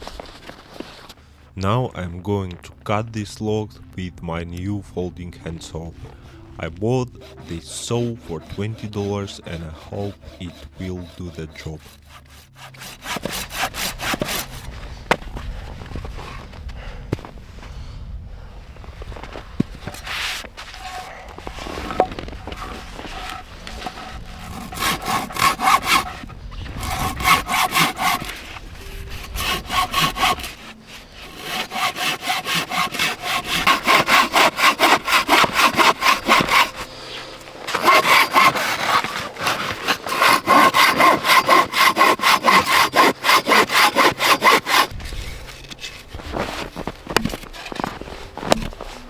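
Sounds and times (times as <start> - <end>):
handsaw cutting log: 6.0 - 15.3, 19.8 - 49.0.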